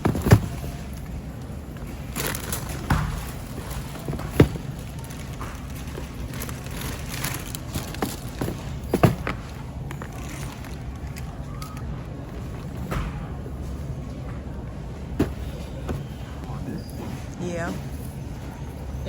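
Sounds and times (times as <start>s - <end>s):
sharp knocks and thuds: 15.2s - 16.3s.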